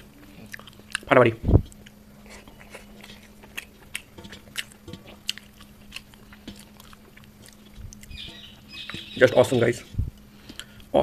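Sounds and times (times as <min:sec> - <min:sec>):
person chewing food: 0:00.0 - 0:01.1, 0:01.7 - 0:09.5, 0:10.2 - 0:10.9
faint hum: 0:00.0 - 0:11.0.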